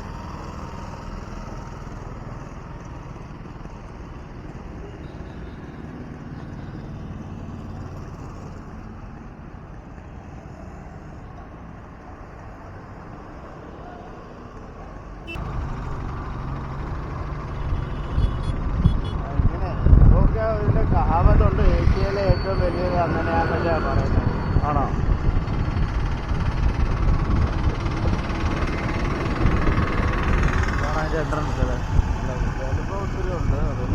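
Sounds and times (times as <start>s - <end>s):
road and wind noise: 0.0s - 33.9s
motorcycle engine running: 15.2s - 22.5s, 23.5s - 33.9s.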